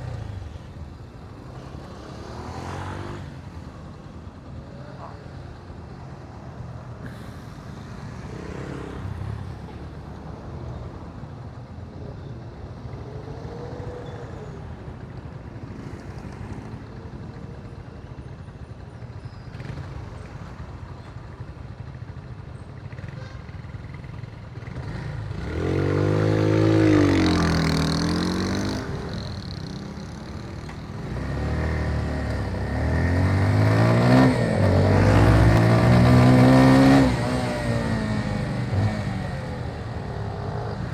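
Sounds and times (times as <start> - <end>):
road noise: 0.0 - 40.9
motorcycle engine revving: 24.6 - 40.9.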